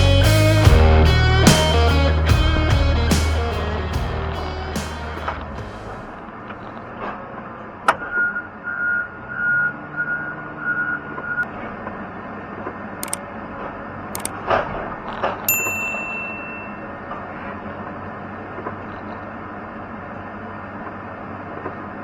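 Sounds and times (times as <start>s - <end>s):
machinery noise: 0.0s - 6.8s.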